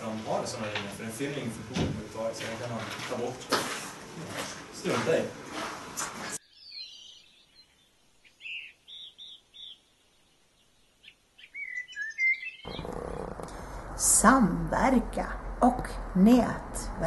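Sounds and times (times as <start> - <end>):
birds chirping: 6.3 - 17.0
steady low hum: 12.7 - 17.0.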